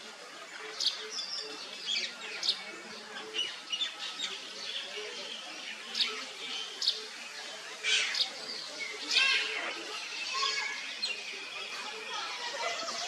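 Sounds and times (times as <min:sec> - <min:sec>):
small birds chirping: 0:00.4 - 0:13.0.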